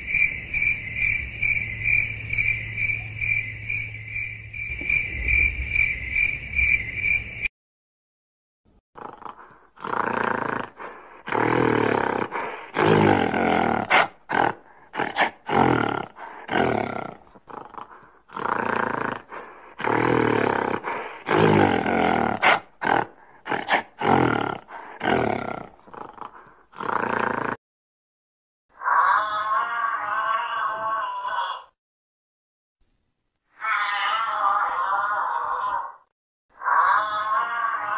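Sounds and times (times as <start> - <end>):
gorilla grunts: 9.0 - 27.6.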